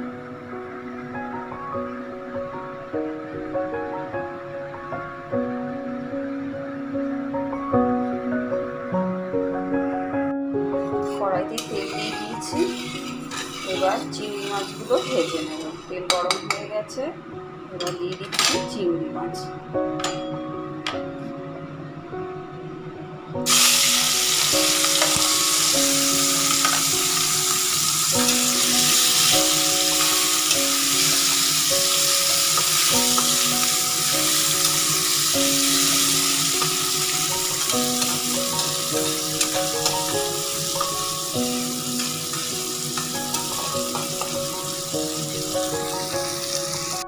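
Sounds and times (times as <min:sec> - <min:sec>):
spatula stirring: 0:11.5 - 0:16.6
prawns sizzling in hot oil: 0:11.6 - 0:15.8, 0:23.5 - 0:47.0.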